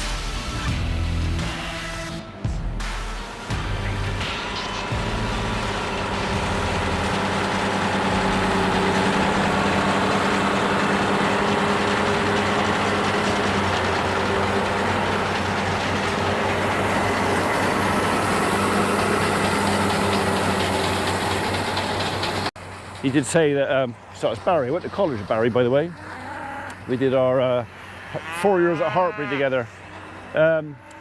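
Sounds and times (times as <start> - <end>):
vehicle engine running steadily: 3.3 - 25.9.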